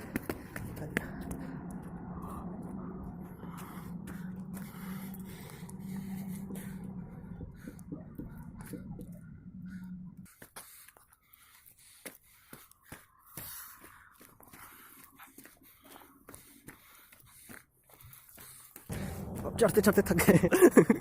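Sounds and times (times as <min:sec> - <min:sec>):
low hum and rumble: 0:00.0 - 0:10.4, 0:18.9 - 0:21.0.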